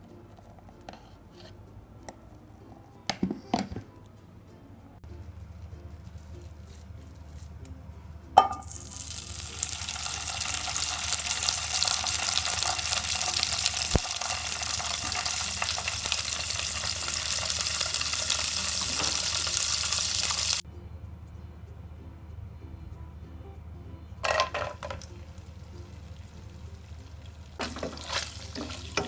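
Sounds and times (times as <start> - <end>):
food sizzling in a frying pan: 8.4 - 20.6, 24.3 - 29.0.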